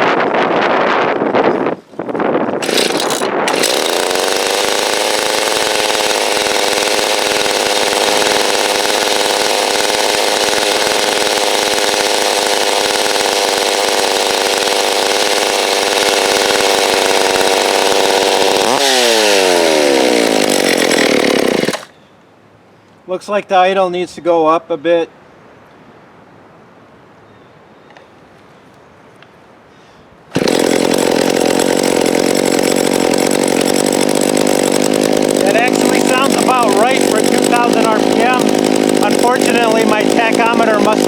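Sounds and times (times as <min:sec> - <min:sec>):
chainsaw engine running: 0:02.6 - 0:21.9, 0:30.3 - 0:41.0.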